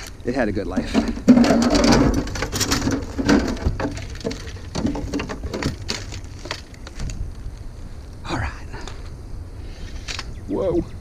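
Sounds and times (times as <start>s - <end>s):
cracking and crunching by hand: 1.0s - 7.7s.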